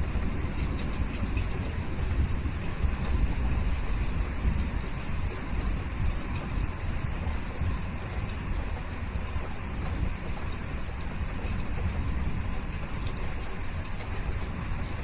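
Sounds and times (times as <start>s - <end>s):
raindrops ticking: 0.0s - 15.0s
steady rain hiss: 0.0s - 15.0s.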